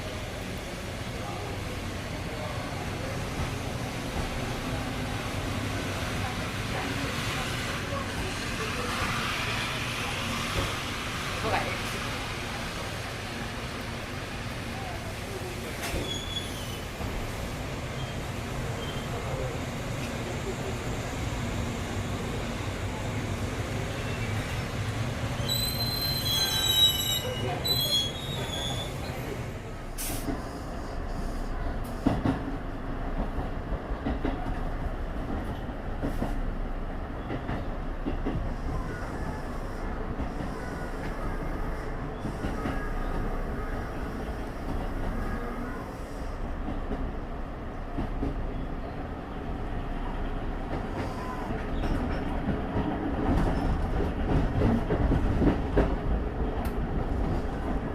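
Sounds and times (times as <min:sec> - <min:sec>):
train rumbling: 0:00.0 - 0:57.9
train wheels squealing: 0:15.9 - 0:16.9, 0:18.8 - 0:19.2, 0:25.4 - 0:29.2.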